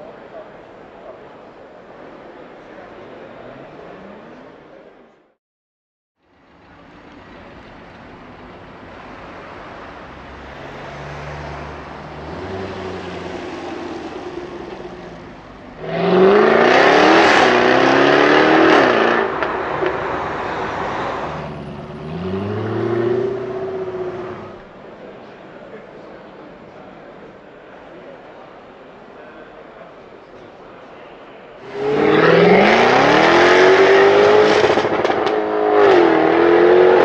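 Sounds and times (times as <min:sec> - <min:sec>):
car engine accelerating hard: 0:09.0 - 0:24.7, 0:31.6 - 0:37.0.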